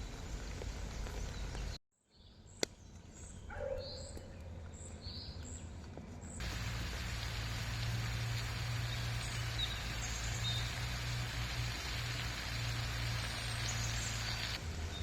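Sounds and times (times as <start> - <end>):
steady outdoor noise: 0.0 - 1.8, 2.4 - 15.0
birds chirping: 0.0 - 15.0
low hum: 6.4 - 15.0.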